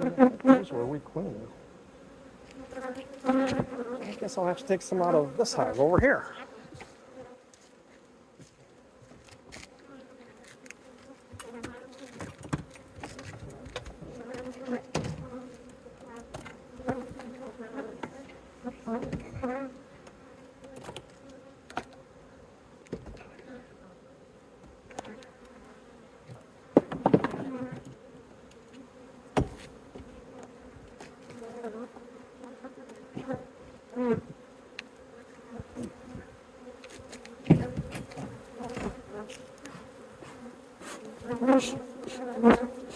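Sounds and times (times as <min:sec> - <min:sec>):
bees buzzing: 0:00.0 - 0:07.4, 0:26.8 - 0:42.9.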